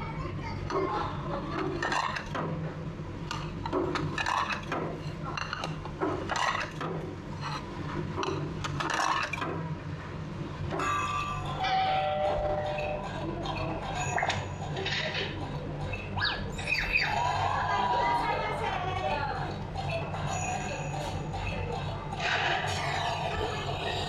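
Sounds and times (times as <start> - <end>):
indistinct chatter of diners: 0.0 - 24.0
dishes clinking: 1.6 - 2.4, 10.7 - 16.0.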